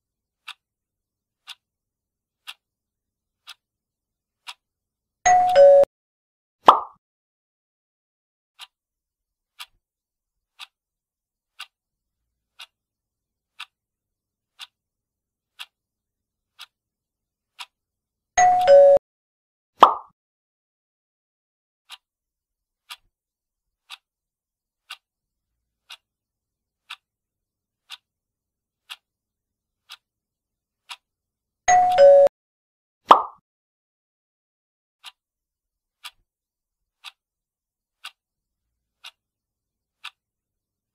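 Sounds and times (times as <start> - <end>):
clock ticking: 0.4 - 0.7, 1.4 - 1.7, 2.4 - 2.6, 3.4 - 3.6, 4.4 - 4.7, 5.3 - 5.9, 8.6 - 8.8, 9.5 - 9.8, 10.5 - 10.8, 11.5 - 11.8, 12.5 - 12.8, 13.5 - 13.8, 14.5 - 14.8, 15.5 - 15.8, 16.5 - 16.8, 17.5 - 17.8, 18.4 - 19.0, 21.9 - 22.1, 22.8 - 23.1, 23.8 - 24.1, 24.8 - 25.1, 25.8 - 26.1, 26.8 - 27.1, 27.8 - 28.1, 28.8 - 29.1, 29.8 - 30.1, 30.8 - 31.1, 36.0 - 36.2, 37.0 - 37.2, 38.0 - 38.2, 39.0 - 39.2, 40.0 - 40.2
two-note chime: 5.3 - 5.9, 18.4 - 19.0, 31.7 - 32.3.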